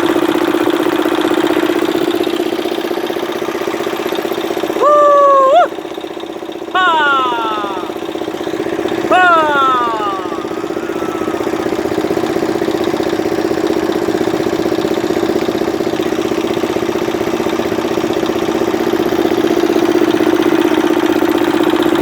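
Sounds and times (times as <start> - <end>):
motor engine pulsing hum: 0.0 - 22.0.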